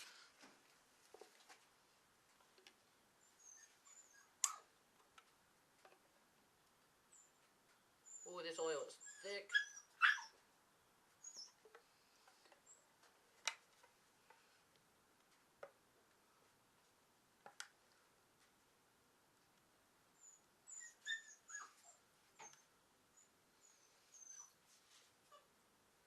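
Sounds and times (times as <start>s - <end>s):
dog whining: 3.2s - 4.7s, 8.9s - 10.4s, 11.2s - 11.7s, 20.2s - 24.6s.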